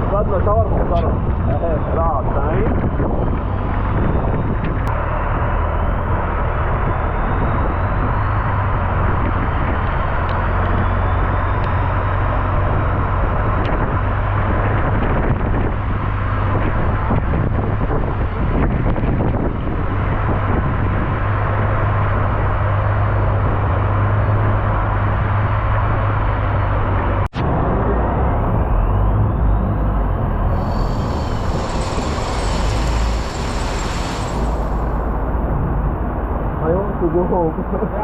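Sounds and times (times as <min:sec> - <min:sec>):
engine humming: 0:28.8 - 0:36.6
rushing noise: 0:30.5 - 0:36.1.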